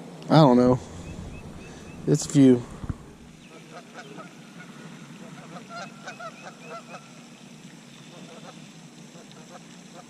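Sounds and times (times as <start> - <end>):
faint honking bird calls: 0.7 - 4.3.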